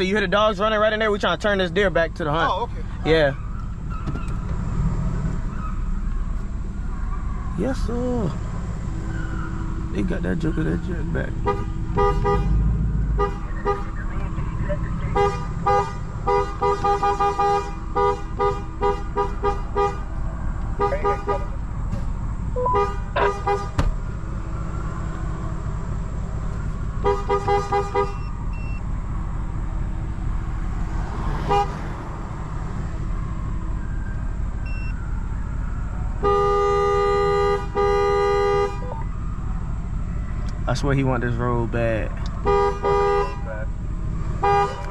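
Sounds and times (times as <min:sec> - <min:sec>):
low idling rumble: 0:00.0 - 0:36.1
vehicle horn honking: 0:11.2 - 0:21.6, 0:22.6 - 0:23.9, 0:27.0 - 0:28.8, 0:31.1 - 0:31.9, 0:36.2 - 0:39.0, 0:42.4 - 0:43.7, 0:44.4 - 0:44.9.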